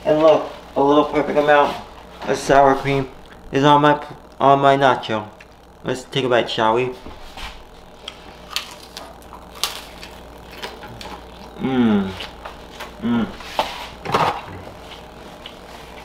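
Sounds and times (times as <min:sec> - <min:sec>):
person humming with enjoyment: 0:10.9 - 0:13.6.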